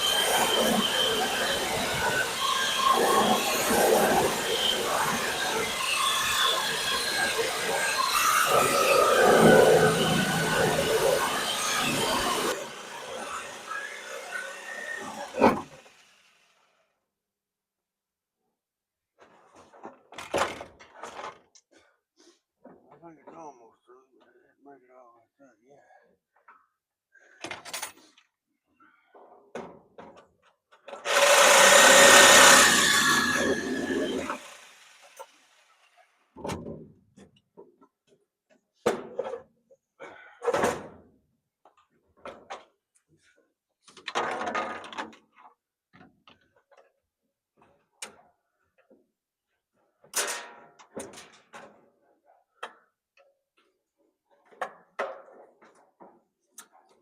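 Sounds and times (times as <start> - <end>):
handheld power tool running: 0.0 - 16.6, 31.0 - 35.9.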